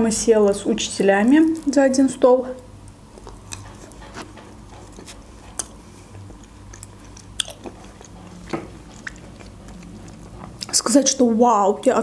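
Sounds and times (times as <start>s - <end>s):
wet chewing sounds: 2.8s - 11.0s.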